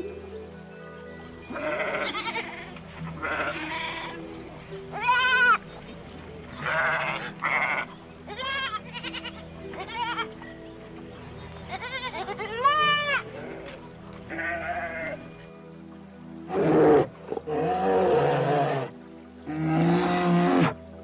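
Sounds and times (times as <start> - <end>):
background music: 0.0 - 21.0
animal bleating: 1.5 - 4.2, 4.9 - 5.6, 6.6 - 10.3, 11.7 - 15.2, 16.5 - 18.9, 19.5 - 20.8.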